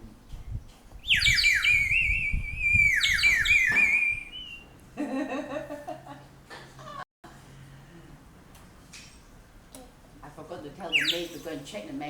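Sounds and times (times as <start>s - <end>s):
toy bird whistle trilling: 1.0s - 4.6s, 10.9s - 11.6s.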